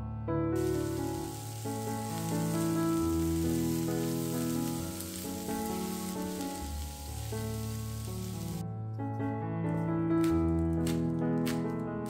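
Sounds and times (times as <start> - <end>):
gentle background music: 0.0 - 12.0
cabbage sizzling in a pan: 0.6 - 8.6.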